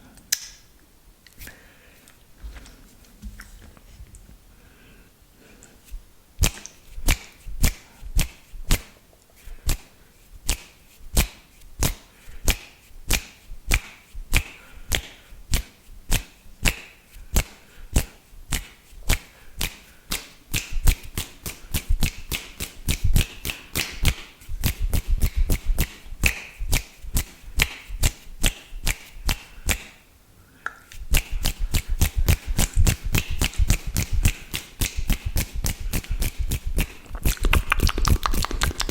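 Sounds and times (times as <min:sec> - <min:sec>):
wet mouth spit and lip smacks: 0:06.4 - 0:08.9, 0:30.9 - 0:38.9.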